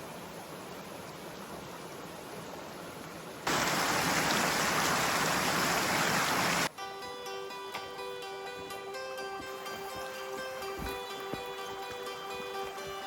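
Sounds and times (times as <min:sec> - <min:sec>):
creek water running: 0:00.0 - 0:06.7
background music: 0:06.7 - 0:13.0.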